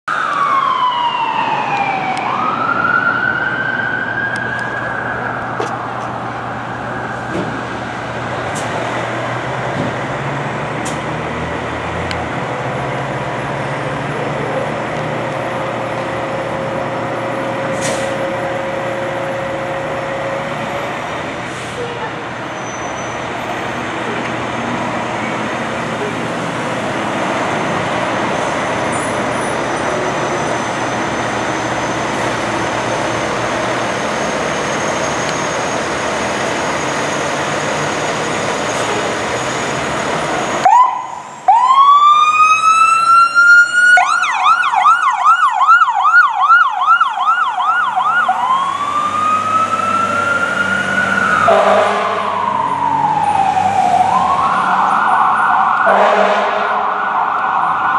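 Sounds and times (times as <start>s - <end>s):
road and engine noise: 0.1s - 57.9s
electronic siren wailing and yelping: 40.6s - 56.1s.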